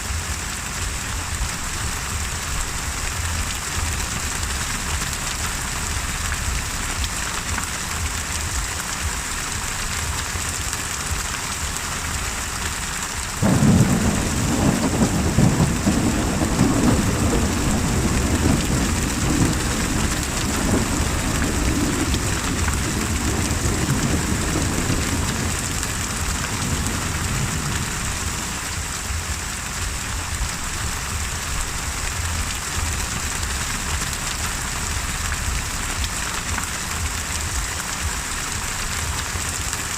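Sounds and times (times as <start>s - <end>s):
steady rain: 0.0s - 39.9s
thunderclap rolling: 13.4s - 28.8s.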